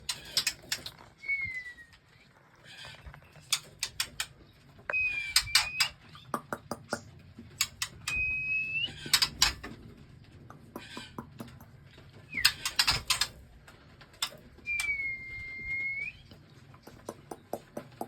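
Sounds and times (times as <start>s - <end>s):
songbirds clicking chips: 0.0s - 1.0s, 3.2s - 8.3s, 10.4s - 13.4s, 15.8s - 18.0s
bird whistled notes: 14.6s - 16.3s.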